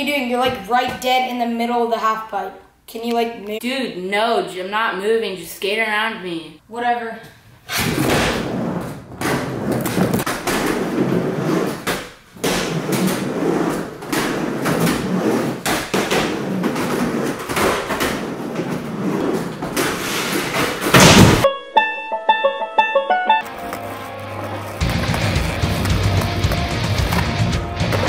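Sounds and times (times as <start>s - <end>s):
skateboard wheels rolling on ramp: 8.0s - 20.9s, 23.4s - 28.0s
loud bang: 20.9s - 21.5s
music with plucked notes: 21.5s - 28.0s.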